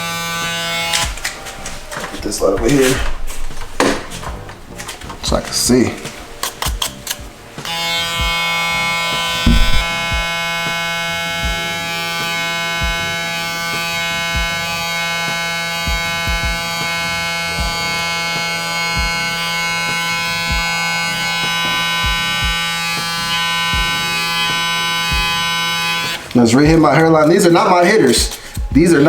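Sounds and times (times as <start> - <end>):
electric hair trimmer buzzing: 0.0 - 1.4, 6.6 - 26.4
soft low knocks: 9.4 - 10.3.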